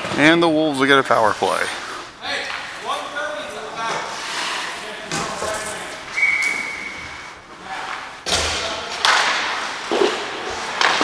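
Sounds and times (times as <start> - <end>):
whistle-like tone: 6.2 - 7.1
hockey sticks puck and skates knocking: 7.8 - 11.0.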